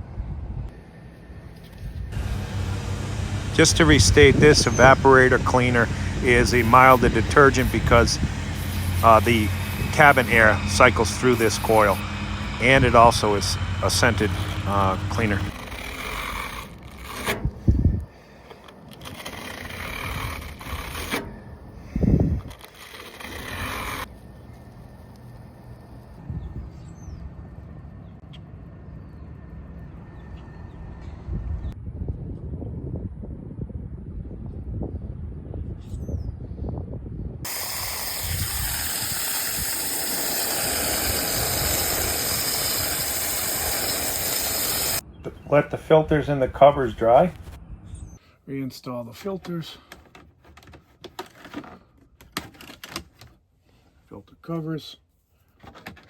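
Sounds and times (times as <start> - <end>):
low wind rumble on microphone: 0.0 - 0.8, 1.4 - 15.6, 17.4 - 18.2, 19.8 - 22.6, 26.2 - 28.1, 30.6 - 43.8, 46.1 - 48.2
spray hissing: 2.2 - 15.6, 37.5 - 45.0.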